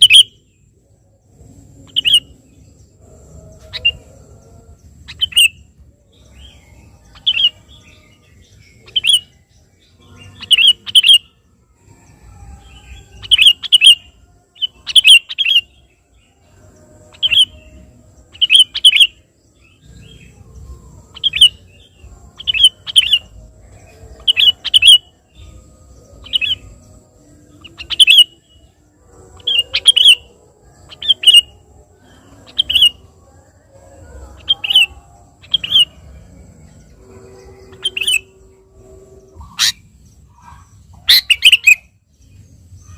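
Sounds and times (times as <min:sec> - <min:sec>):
bulbul calling: 0:00.0 - 0:00.4, 0:01.8 - 0:02.4, 0:03.6 - 0:04.2, 0:05.0 - 0:05.7, 0:06.3 - 0:09.4, 0:10.2 - 0:11.3, 0:12.9 - 0:14.0, 0:14.6 - 0:15.7, 0:17.1 - 0:17.7, 0:18.3 - 0:19.2, 0:21.1 - 0:25.5, 0:27.6 - 0:28.6, 0:29.3 - 0:33.2, 0:34.3 - 0:38.5, 0:39.4 - 0:42.0.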